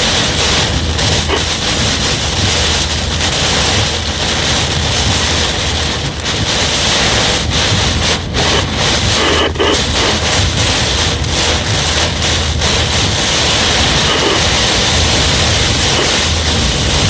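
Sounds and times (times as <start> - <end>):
heavy rain: 0.0 - 17.0
wind rushing: 0.0 - 17.0.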